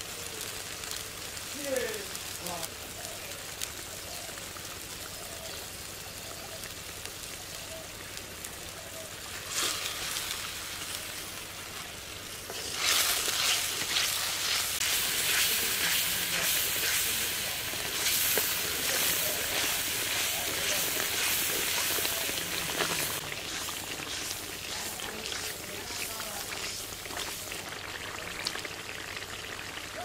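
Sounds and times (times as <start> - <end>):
onions sizzling in oil: 0.0 - 30.0
wooden spatula scraping wok: 9.3 - 10.9, 11.6 - 27.7.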